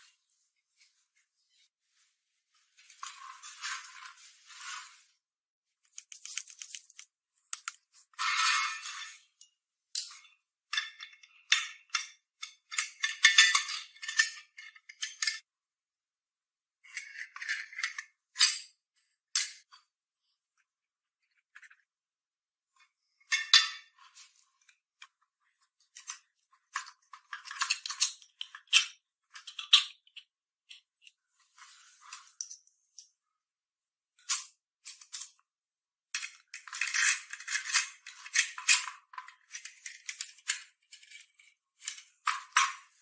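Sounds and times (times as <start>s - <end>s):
scraping and rattling small parts: 2.8s - 5.0s, 5.9s - 15.5s, 16.8s - 18.5s, 23.2s - 33.2s, 36.1s - 43.0s.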